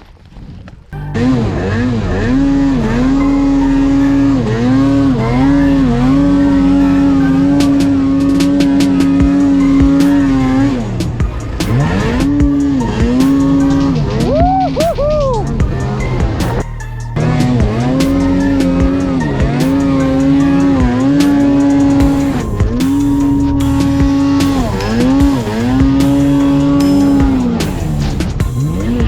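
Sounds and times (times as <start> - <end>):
snowmobile engine at high revs: 1.2 - 16.6, 17.2 - 29.0.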